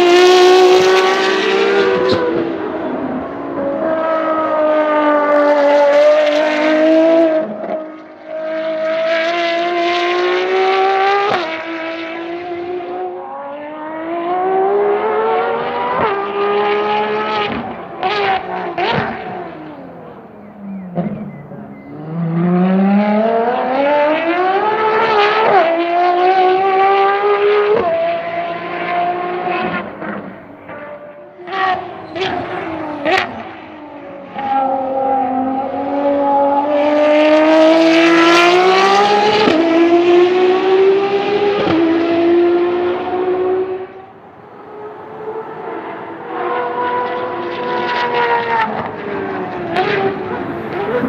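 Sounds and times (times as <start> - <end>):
sports car engine accelerating: 0.0 - 51.0
engine blips: 19.3 - 23.3.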